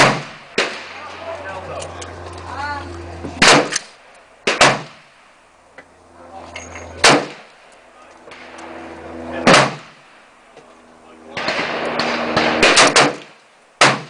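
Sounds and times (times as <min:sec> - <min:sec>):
rifle shots with echo: 0:00.0 - 0:01.1, 0:03.4 - 0:05.1, 0:07.0 - 0:07.5, 0:09.4 - 0:10.1, 0:11.3 - 0:14.0.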